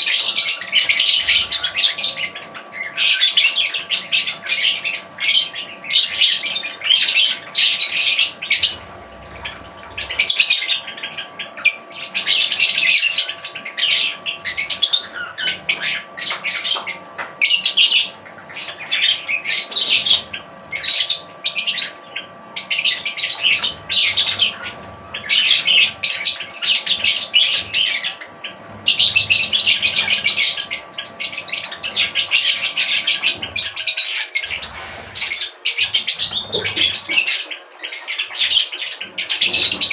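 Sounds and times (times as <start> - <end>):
small birds chirping and squawking: 0.0 - 39.9.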